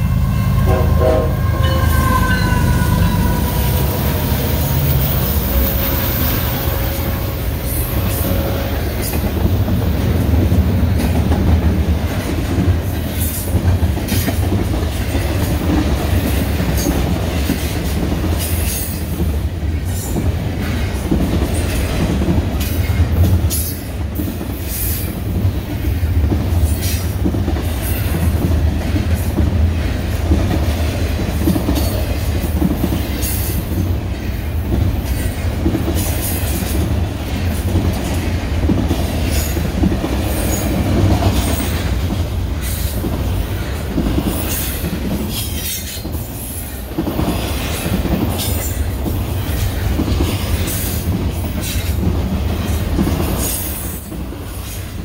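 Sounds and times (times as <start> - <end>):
freight train cars rumbling past: 0.0 - 55.0
high wheel squeals: 0.1 - 7.9.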